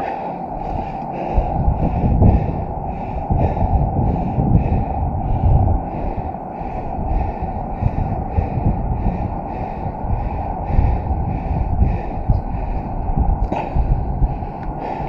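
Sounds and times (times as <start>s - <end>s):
heavy rhythmic breathing: 0.0s - 15.0s
low thumps: 0.6s - 6.2s.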